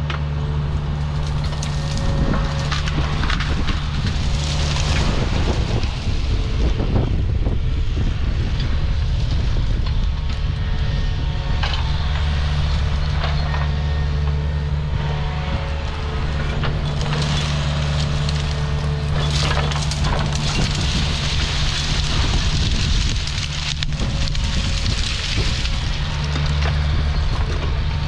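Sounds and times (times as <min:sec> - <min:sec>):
wood cracking and snapping: 0:00.0 - 0:07.2, 0:11.5 - 0:28.0
diesel engine under load: 0:00.0 - 0:28.0.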